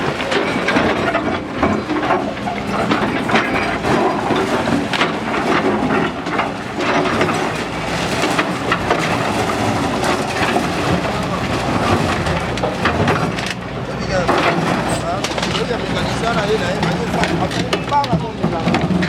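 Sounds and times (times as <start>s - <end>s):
demolition crunching and clattering: 0.0s - 19.0s.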